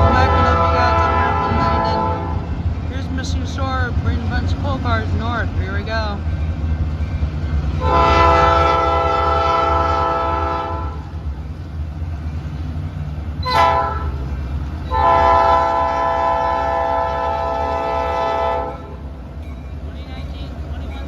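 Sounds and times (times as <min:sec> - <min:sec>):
locomotive horn blasts: 0:00.0 - 0:02.6, 0:07.8 - 0:11.1, 0:13.4 - 0:19.0
low rumble of locomotive: 0:00.0 - 0:21.0.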